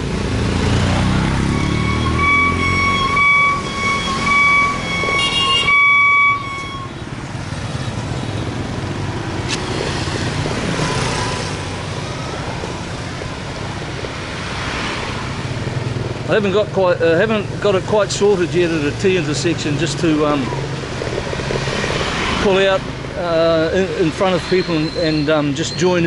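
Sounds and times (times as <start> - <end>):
motorbike road and wind noise: 0.0 - 26.0
high beeping tone: 1.4 - 7.0.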